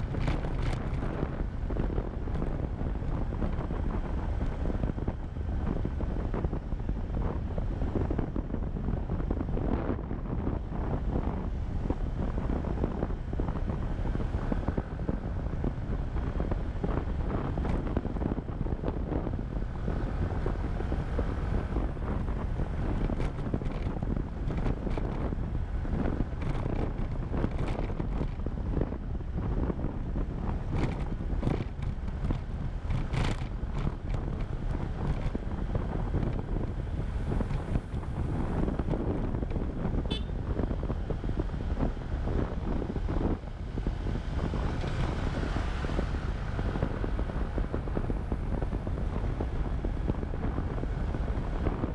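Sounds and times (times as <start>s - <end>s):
motorbike running: 0.0s - 51.9s
sharp wind crackles: 0.0s - 51.9s
wind buffeting microphone: 0.0s - 51.9s.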